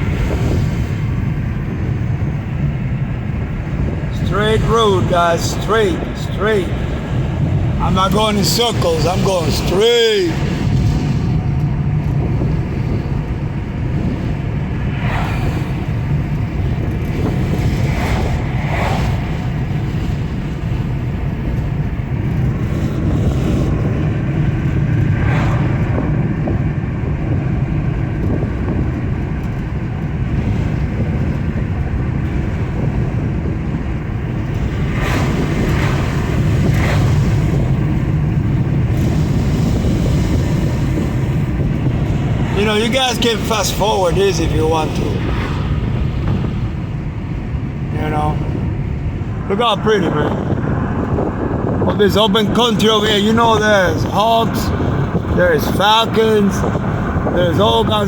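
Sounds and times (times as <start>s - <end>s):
road and engine noise in car: 0.0s - 58.0s.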